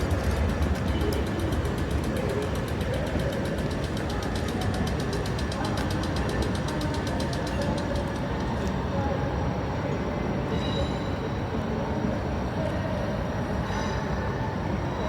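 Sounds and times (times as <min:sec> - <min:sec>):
fast regular ticks: 0:00.0 - 0:08.5
train rumbling on rails: 0:00.0 - 0:15.0.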